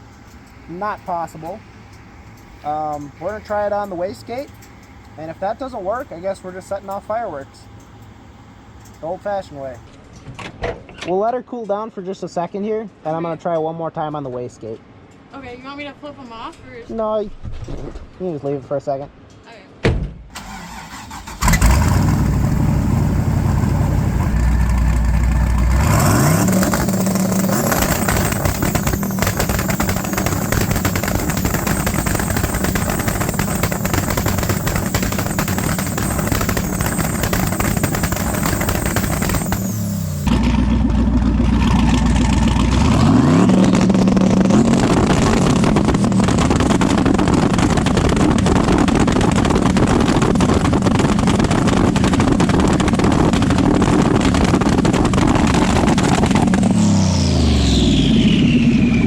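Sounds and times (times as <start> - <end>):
drag car engine popping and banging: 19.8 - 57.0.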